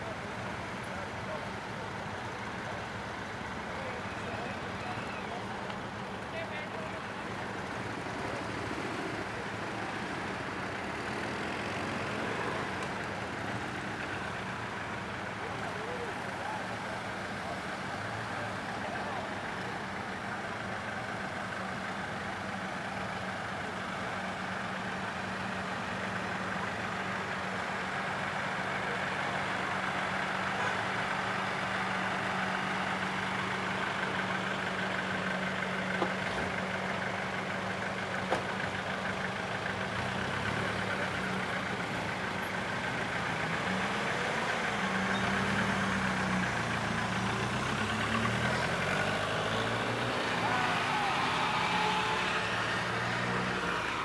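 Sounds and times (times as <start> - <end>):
car engines idling: 0.0 - 54.0
cars driving past: 38.2 - 54.0.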